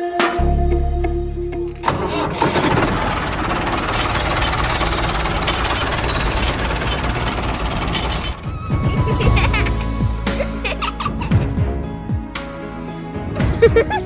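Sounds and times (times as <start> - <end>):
background music: 0.0 - 3.4, 6.6 - 14.0
small engine rattling: 1.8 - 8.9.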